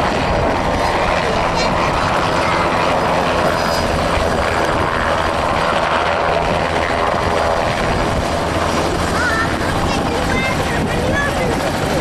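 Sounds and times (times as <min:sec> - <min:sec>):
helicopter in flight: 0:00.0 - 0:12.0.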